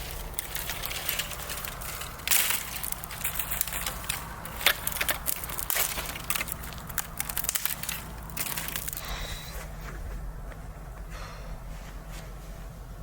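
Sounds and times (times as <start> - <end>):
crackling and snapping clicks: 0.0 - 9.2
low steady hum: 0.0 - 13.0.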